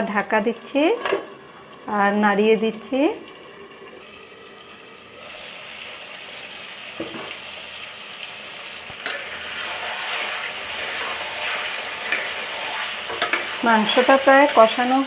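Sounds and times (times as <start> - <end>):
meat sizzling in a pot: 0.0 - 15.0
spatula stirring: 9.0 - 15.0.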